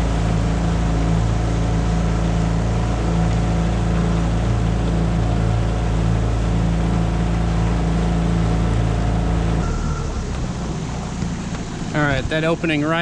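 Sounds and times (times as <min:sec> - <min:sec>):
boat water noise: 0:00.0 - 0:13.0
outboard motor running: 0:00.0 - 0:13.0.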